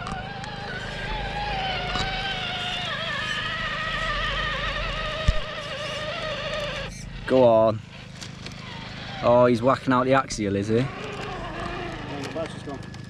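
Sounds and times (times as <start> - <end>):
electric motor whining: 0.0 - 13.0
higher motor whine: 0.0 - 13.0.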